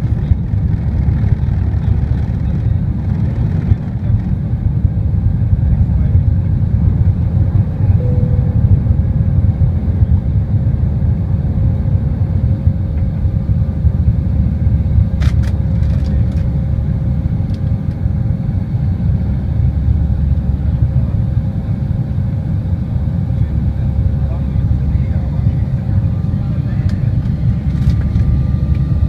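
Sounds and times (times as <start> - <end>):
airliner engine rumble: 0.0 - 29.0
faint steady hum: 7.5 - 11.2.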